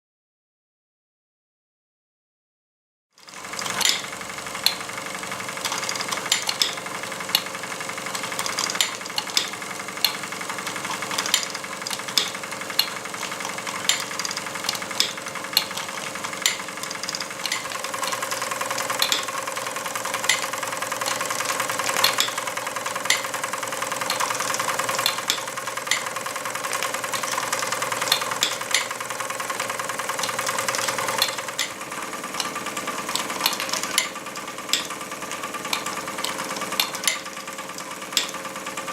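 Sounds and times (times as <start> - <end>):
toy mechanism rattling and whirring: 3.2 - 38.9
metallic hammer ticks: 8.1 - 35.0, 35.7 - 38.4.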